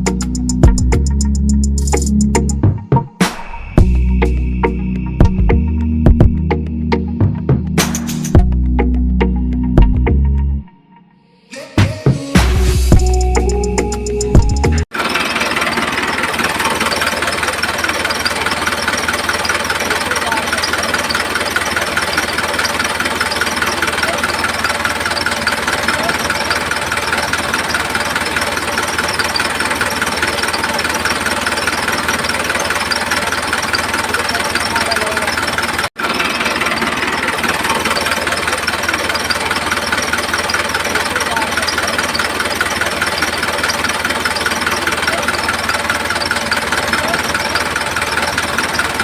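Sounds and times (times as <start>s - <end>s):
small engine knocking steadily: 14.3s - 49.0s.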